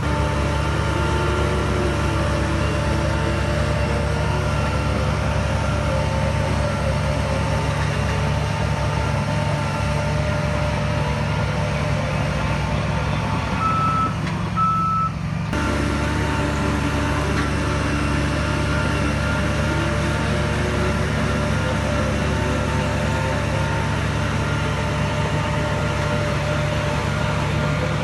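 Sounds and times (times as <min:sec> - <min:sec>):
heavy diesel machine running: 0:00.0 - 0:28.0
reversing alarm beeps: 0:13.6 - 0:15.2.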